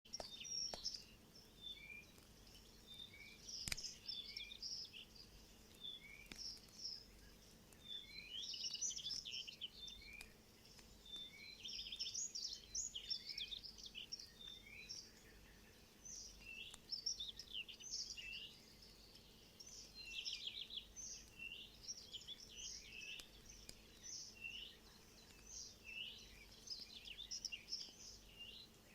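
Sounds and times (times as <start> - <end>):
small songbirds chirping: 0.0 - 28.9
sharp click: 3.6 - 4.0.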